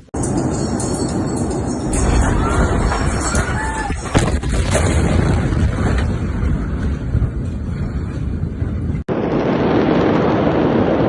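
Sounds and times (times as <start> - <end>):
wind buffeting microphone: 0.2 - 11.0
steady rumbling noise: 4.1 - 11.0
dull rushing noise: 4.2 - 11.0.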